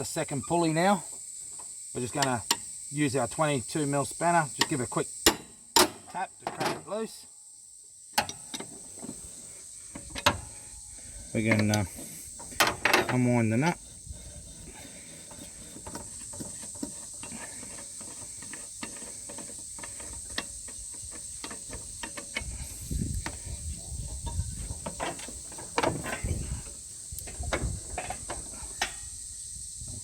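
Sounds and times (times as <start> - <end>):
high insect drone: 0.0 - 30.0
hand tools clicking and knocking: 4.6 - 6.9, 8.2 - 9.2, 9.9 - 10.6, 11.4 - 29.1
dull thumps: 9.9 - 28.7.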